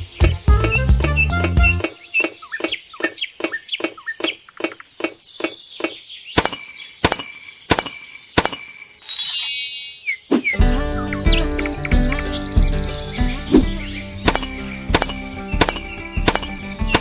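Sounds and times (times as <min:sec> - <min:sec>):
bird-like chirping: 0:00.0 - 0:17.0
sharp clicks: 0:01.8 - 0:09.0, 0:14.3 - 0:17.0.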